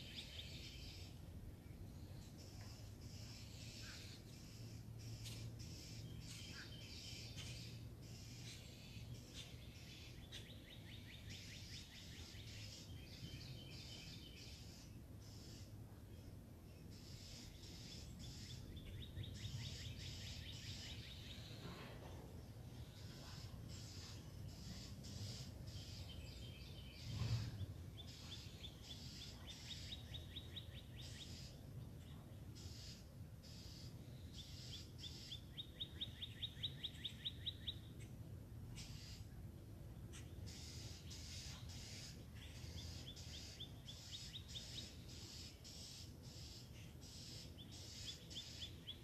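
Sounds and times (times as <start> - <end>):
birds chirping: 0.0 - 49.0
high pulsing hiss: 19.4 - 30.0
bird trill: 32.6 - 38.1, 38.7 - 39.3, 40.1 - 49.0.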